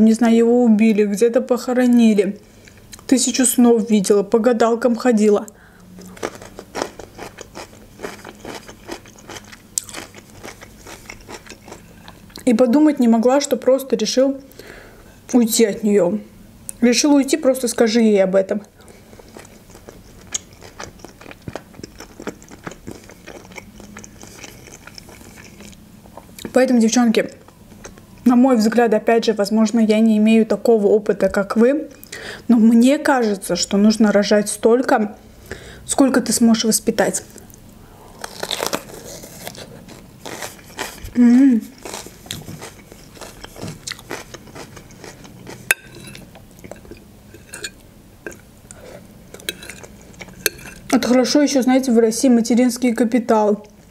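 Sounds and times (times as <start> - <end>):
wet chewing and mouth clicks: 6.0 - 12.5, 18.8 - 26.6, 37.3 - 41.2, 41.8 - 51.0.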